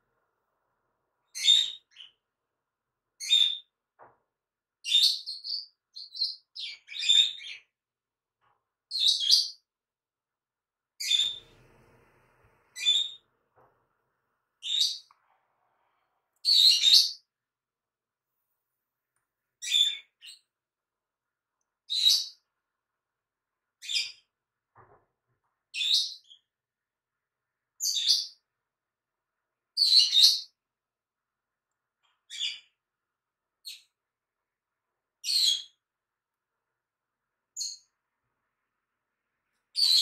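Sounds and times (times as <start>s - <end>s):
bird chirping: 1.2s - 2.2s, 3.2s - 3.7s, 4.8s - 7.8s, 8.9s - 9.7s, 11.0s - 11.9s, 12.7s - 13.3s, 14.6s - 15.2s, 16.4s - 17.3s, 19.6s - 20.5s, 21.9s - 22.4s, 27.8s - 28.4s, 32.2s - 32.8s, 37.6s - 38.0s, 39.7s - 40.0s.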